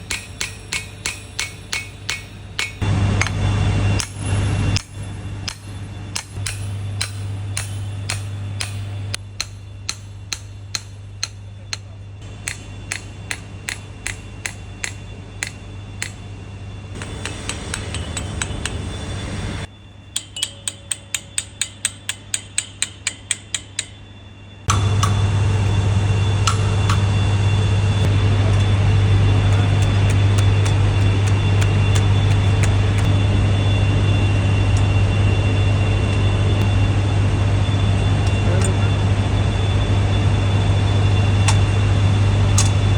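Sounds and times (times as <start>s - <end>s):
low hum: 0.0s - 42.9s
sharp metallic ticks: 4.8s - 16.2s, 20.1s - 24.0s, 29.5s - 33.1s
engine running loudly: 24.7s - 42.9s.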